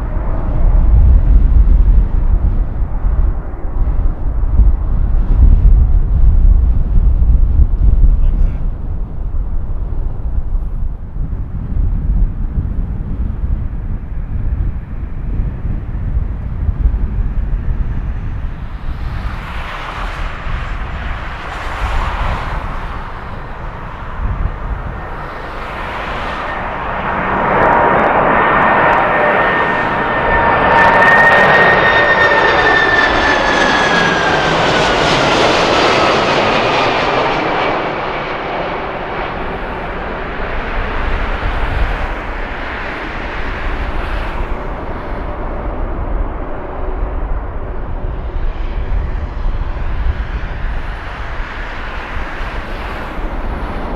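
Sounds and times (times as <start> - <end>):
jet engines passing: 0.0 - 53.9
high engine whine: 13.5 - 53.9.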